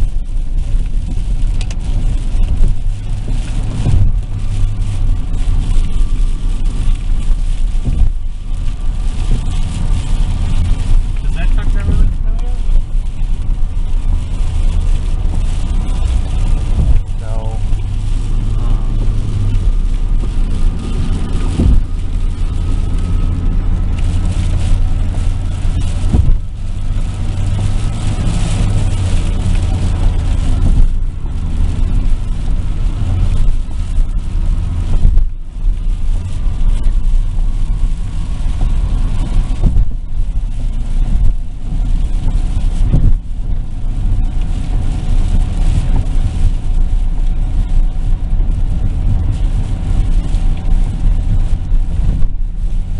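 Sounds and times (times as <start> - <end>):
engine and tyre rumble: 0.0 - 52.9.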